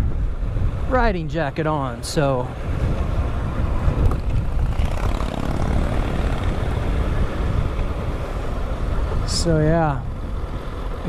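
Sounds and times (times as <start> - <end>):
wind buffeting microphone: 0.0 - 11.0
motorcycle engine running: 3.2 - 9.2.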